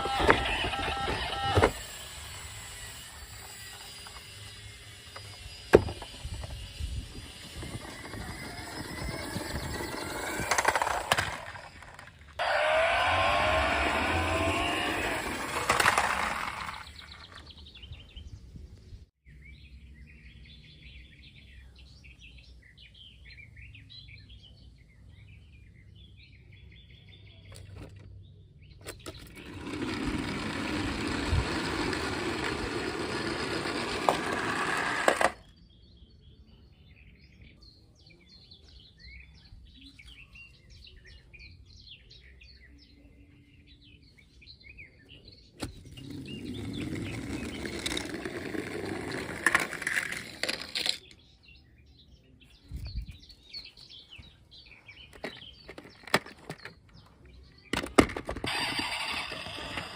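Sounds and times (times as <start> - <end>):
toy cars rolling on hard ground: 0.0 - 17.7, 27.5 - 28.2, 28.8 - 35.6, 45.6 - 51.3, 54.8 - 59.9
birds chirping: 0.0 - 59.9.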